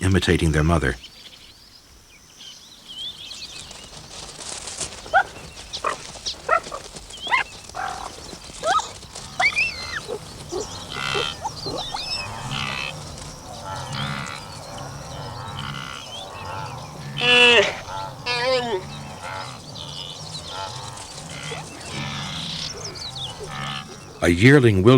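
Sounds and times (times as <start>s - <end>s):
animal sharp cries: 5.0s - 24.2s
animal buzzy bleats: 5.1s - 24.3s.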